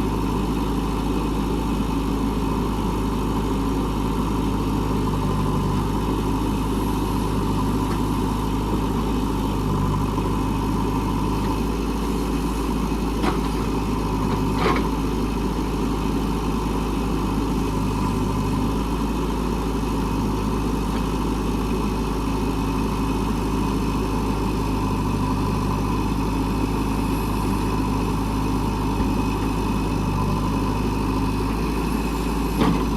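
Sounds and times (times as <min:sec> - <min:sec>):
diesel engine running: 0:00.0 - 0:32.9.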